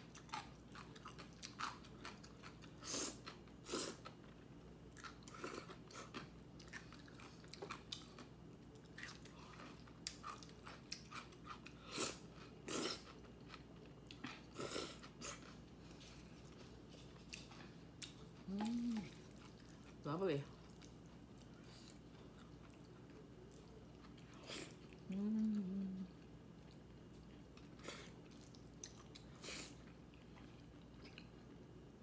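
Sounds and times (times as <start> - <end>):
person chewing: 0.0 - 31.6.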